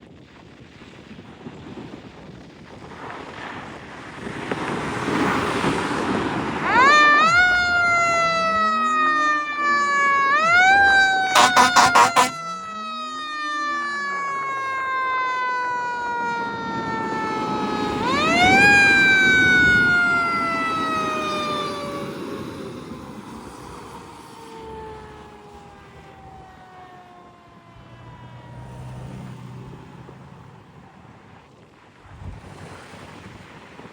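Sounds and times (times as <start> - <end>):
fire truck siren wailing: 6.6 - 31.4
short horn blasts: 11.4 - 12.4
passing vehicle noise: 27.6 - 31.2.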